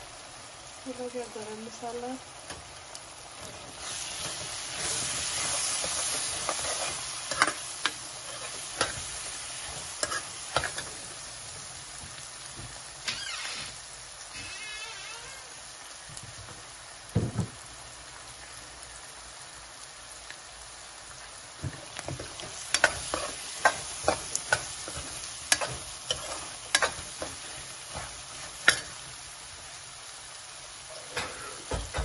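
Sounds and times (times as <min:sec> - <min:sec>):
onions sizzling in a pan: 0:00.0 - 0:32.0
steel ladle scraping a pan: 0:03.8 - 0:11.0, 0:22.4 - 0:29.1.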